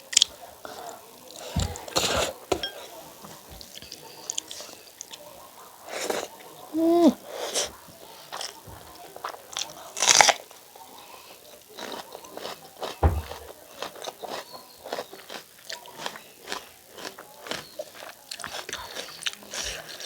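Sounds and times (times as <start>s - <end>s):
crunchy chewing: 7.3s - 20.0s
dull thump: 13.0s - 13.4s.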